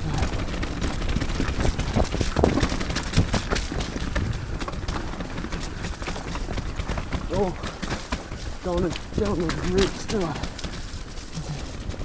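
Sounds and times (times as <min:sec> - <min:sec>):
bike clattering over rough ground: 0:00.0 - 0:12.0
bike tyres rumbling on trail: 0:00.0 - 0:12.0.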